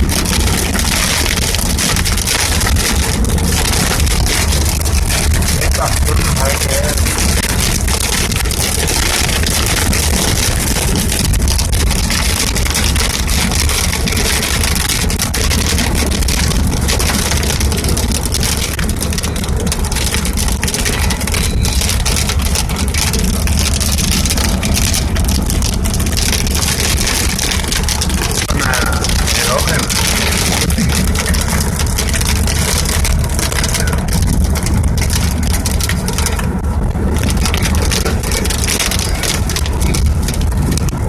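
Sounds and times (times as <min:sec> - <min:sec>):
strong wind buffeting microphone: 0:00.0 - 0:41.0.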